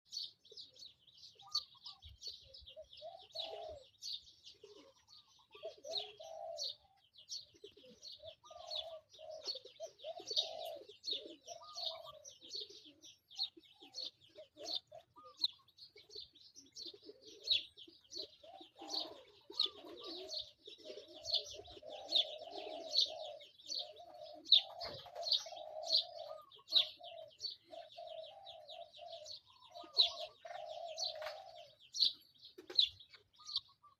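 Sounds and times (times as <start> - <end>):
birds chirping rapidly: 0.1 - 33.9
lower-pitched bird calls: 0.2 - 33.9.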